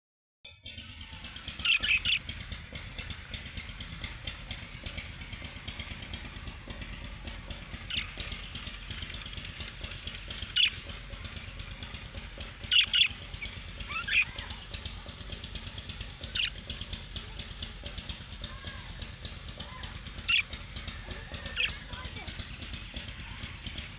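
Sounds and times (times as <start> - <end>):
faint chatter and ticking: 0.7 - 23.9
parrots shrill calls: 1.3 - 2.4, 10.4 - 15.2, 16.2 - 23.5.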